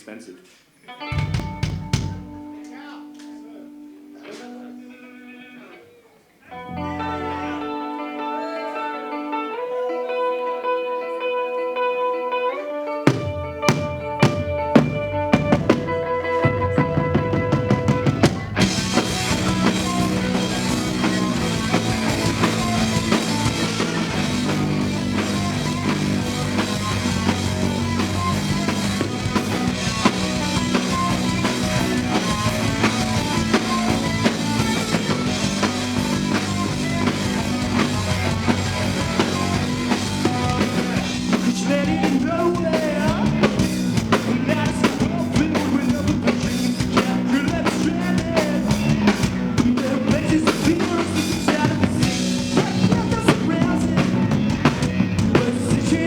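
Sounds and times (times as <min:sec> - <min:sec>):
live rock band playing: 0:01.0 - 0:05.2, 0:06.5 - 0:56.0
sustained guitar notes: 0:01.0 - 0:49.6
drum kit: 0:01.1 - 0:02.9, 0:13.0 - 0:56.0.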